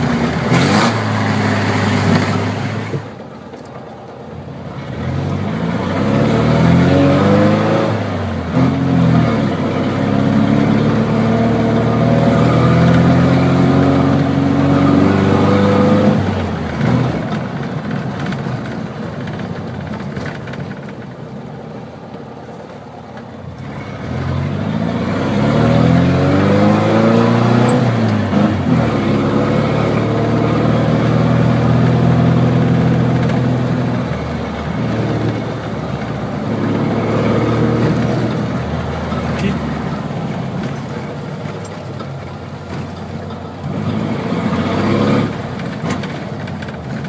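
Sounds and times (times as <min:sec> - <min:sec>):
loud car engine revving: 0:00.0 - 0:03.2, 0:04.4 - 0:18.7, 0:23.5 - 0:47.0.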